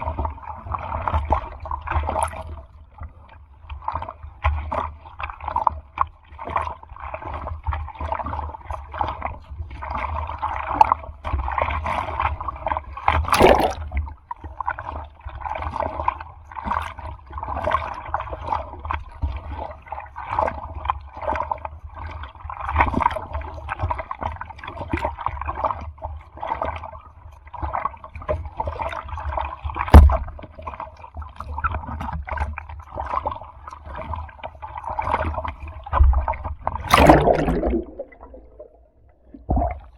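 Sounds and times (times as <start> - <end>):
sea water sloshing and splashing: 0.0 - 39.9
sharp splashes or knocks: 13.3 - 14.0, 36.8 - 38.9.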